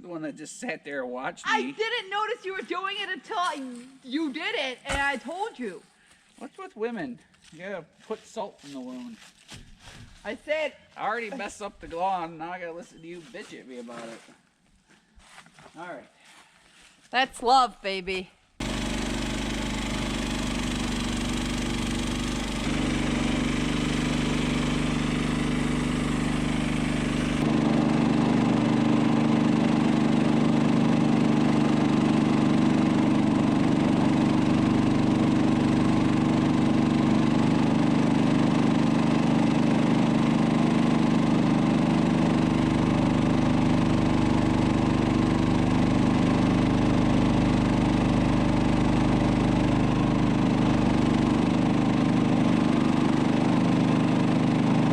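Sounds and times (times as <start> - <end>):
tractor engine running: 18.6 - 54.9.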